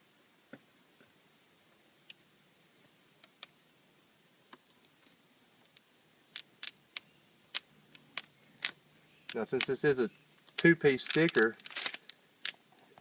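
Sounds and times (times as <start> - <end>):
tape peeling off glass: 10.4 - 12.6.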